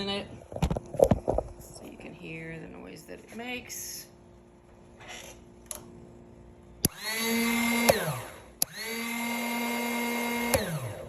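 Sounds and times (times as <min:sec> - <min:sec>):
electric starter whirring: 0:06.8 - 0:11.0.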